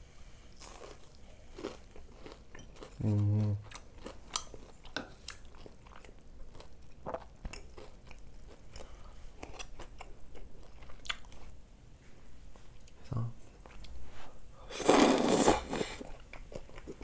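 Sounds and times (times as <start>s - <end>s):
person chewing crunchy food: 0.6s - 11.6s, 14.7s - 17.0s.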